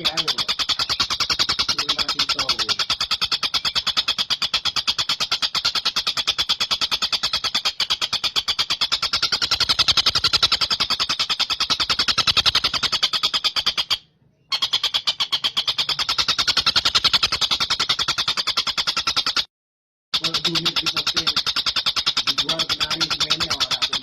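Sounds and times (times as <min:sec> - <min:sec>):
kingfisher chattering call: 0:00.0 - 0:19.4, 0:20.2 - 0:24.0.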